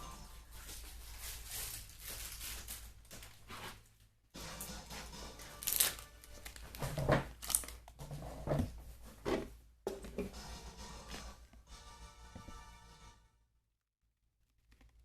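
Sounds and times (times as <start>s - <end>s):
rustling and crinkling handling noise: 0.3s - 4.1s, 5.5s - 10.3s.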